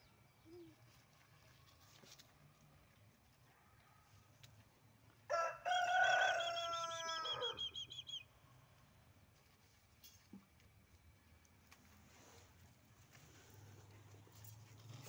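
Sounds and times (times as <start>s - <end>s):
higher bird chirps: 6.5s - 8.3s.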